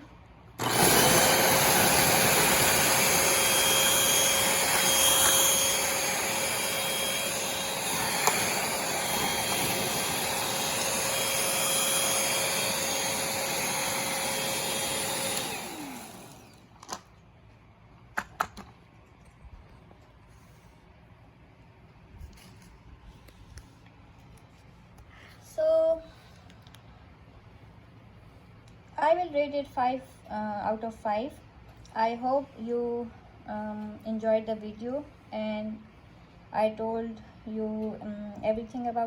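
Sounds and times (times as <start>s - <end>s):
stick vacuum motor whine: 0.6s - 17.0s.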